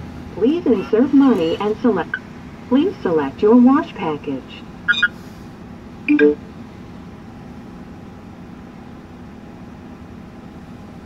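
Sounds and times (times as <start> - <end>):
steady low hum: 0.0 - 11.0
short electronic beep: 4.9 - 5.1, 6.1 - 6.4.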